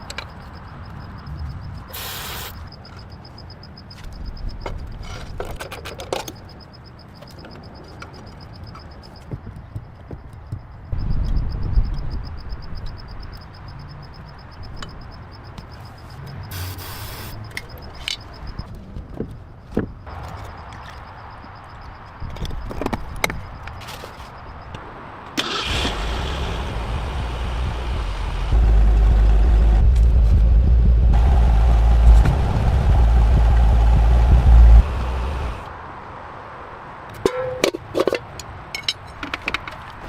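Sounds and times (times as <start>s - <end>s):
car engine starting and running: 25.4s - 35.7s.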